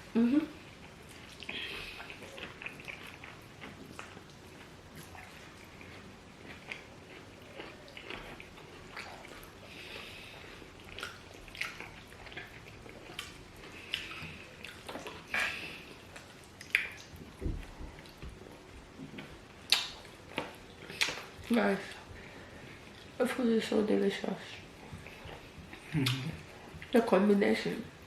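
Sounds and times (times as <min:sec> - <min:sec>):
chewing food: 0:00.4 - 0:27.2
wet mouth clicks and smacks: 0:16.6 - 0:17.3, 0:19.7 - 0:21.3, 0:26.0 - 0:26.4.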